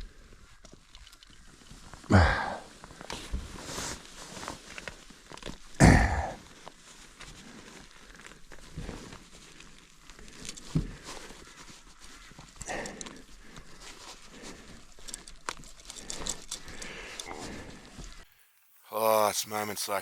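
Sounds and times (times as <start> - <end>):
heavy breathing: 2.1 - 2.8, 10.1 - 18.3.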